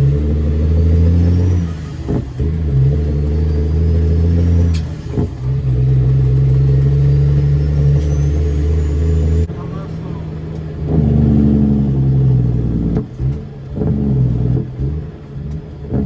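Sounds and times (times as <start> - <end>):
diesel truck engine pulling: 0.0 - 16.0
faint whistle rising in pitch: 6.9 - 9.5.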